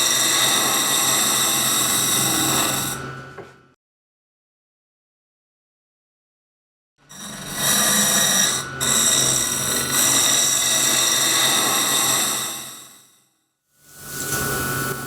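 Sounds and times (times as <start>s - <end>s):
wood lathe whirring: 0.0s - 3.0s, 7.1s - 13.0s.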